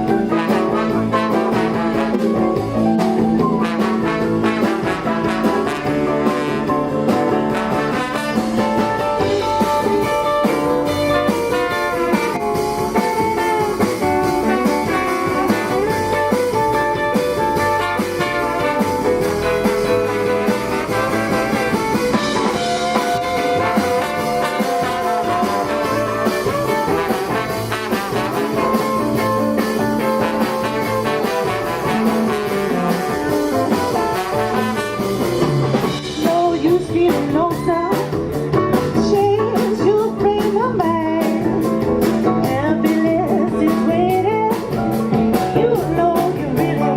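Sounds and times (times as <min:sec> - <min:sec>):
jazz band playing: 0:00.0 - 0:46.9
steady drum beat: 0:00.0 - 0:46.9.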